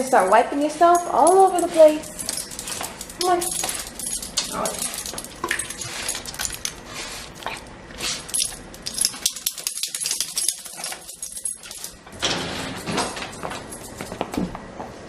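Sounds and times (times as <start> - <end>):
dog rustling: 0.4 - 12.0
small clicks and rattles: 1.0 - 6.8, 7.4 - 12.0.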